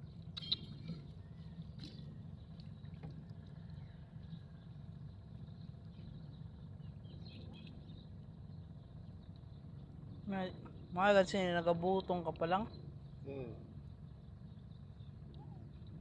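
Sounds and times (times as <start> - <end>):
boat engine drone: 0.0 - 16.0
small clicks and chirps: 0.3 - 1.0.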